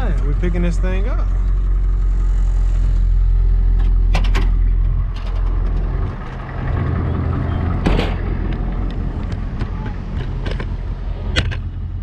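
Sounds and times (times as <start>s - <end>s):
tow truck engine running: 0.0s - 12.0s
sharp metallic clanks: 7.8s - 8.4s.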